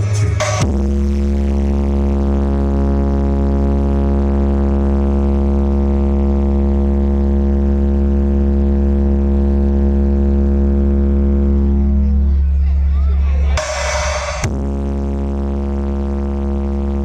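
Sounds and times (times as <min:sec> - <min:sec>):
loud synth drone with heavy bass: 0:00.0 - 0:17.0.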